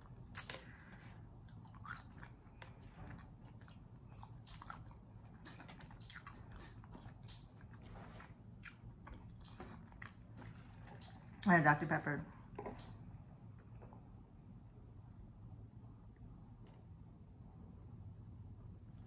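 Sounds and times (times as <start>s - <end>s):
person chewing food: 0.0s - 11.4s.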